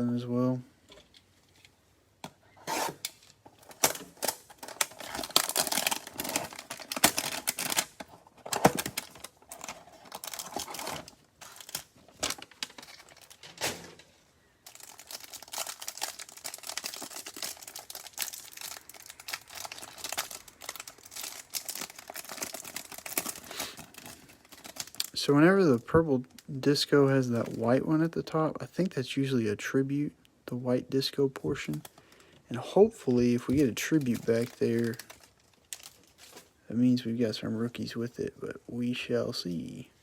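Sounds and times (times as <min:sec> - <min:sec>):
card wrappers crinkling and tearing: 0:02.7 - 0:13.5, 0:14.7 - 0:25.2, 0:33.1 - 0:36.5.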